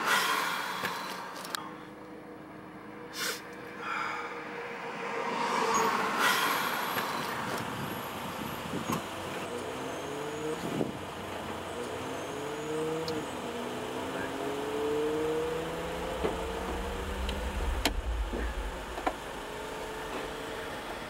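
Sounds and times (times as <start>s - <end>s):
car engine running: 9.2s - 21.0s
short rushes: 15.0s - 21.0s.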